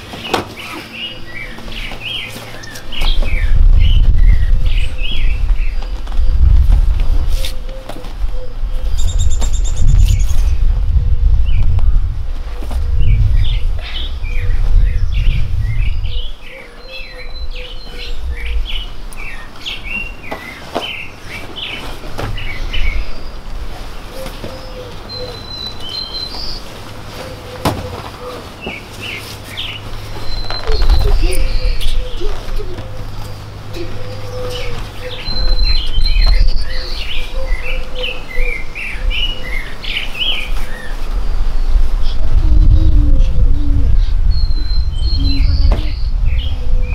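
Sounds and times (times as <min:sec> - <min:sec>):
songbirds chirping: 0:00.0 - 0:10.7, 0:11.4 - 0:46.9
low rumble: 0:03.1 - 0:07.3, 0:08.2 - 0:19.5, 0:41.2 - 0:46.9.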